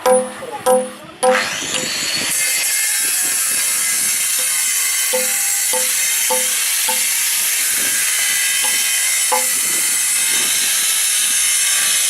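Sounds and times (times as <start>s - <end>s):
hammer and chisel tapping stone: 0.0s - 1.6s, 4.4s - 7.2s, 8.6s - 9.8s.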